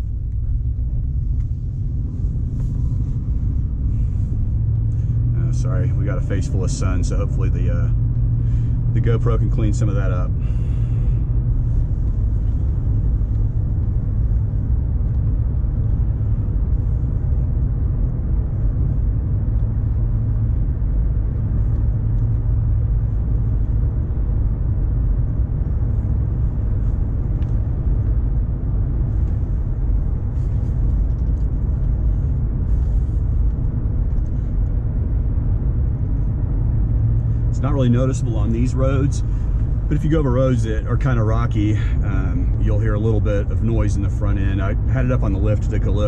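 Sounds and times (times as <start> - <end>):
car engine rumbling: 0.0 - 46.0
tyre and road noise: 0.0 - 46.0.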